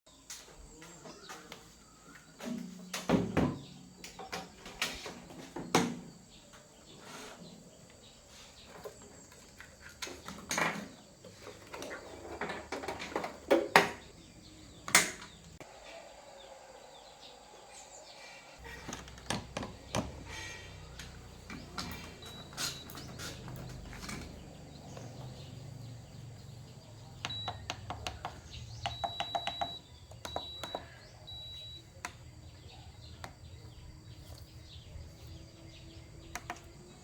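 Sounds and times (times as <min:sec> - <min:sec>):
hard objects clicking and knocking: 0:27.2 - 0:30.9.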